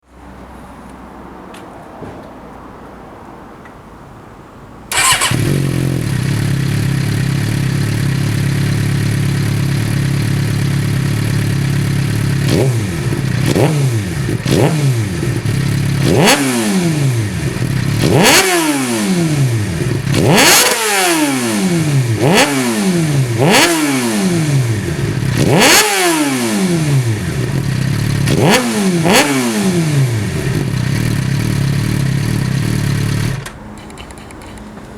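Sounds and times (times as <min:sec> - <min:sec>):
motorcycle engine idling: 0:04.9 - 0:16.1, 0:27.1 - 0:28.4, 0:30.2 - 0:33.4
motorcycle throttle blips: 0:04.9 - 0:34.9.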